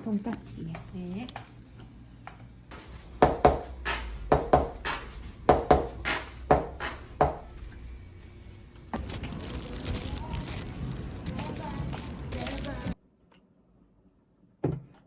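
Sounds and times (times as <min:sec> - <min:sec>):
knife chopping on cutting board: 0:03.2 - 0:07.4.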